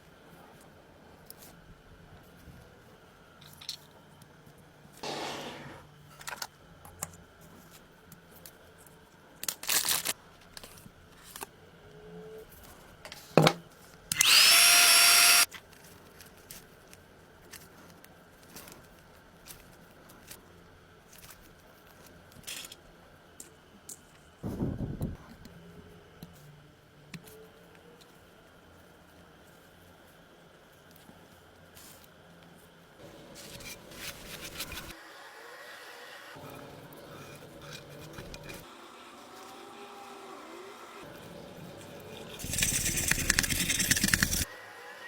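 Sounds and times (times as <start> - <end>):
parts clicking and scraping: 14.1 - 15.5, 33.4 - 35.0, 36.4 - 38.7, 41.8 - 44.5
small power tool whirring: 14.1 - 15.5, 37.2 - 41.1, 42.4 - 45.0.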